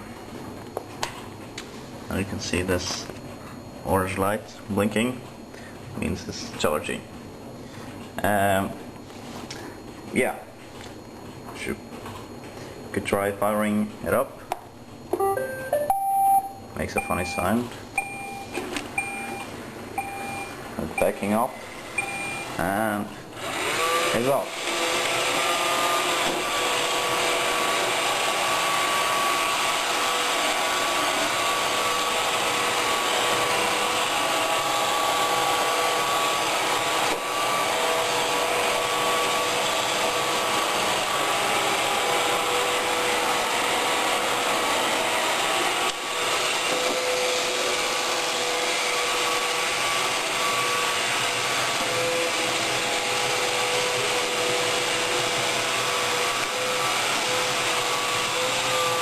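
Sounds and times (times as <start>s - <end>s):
robot vacuum whirring with whine: 21.7s - 22.8s, 23.4s - 59.0s.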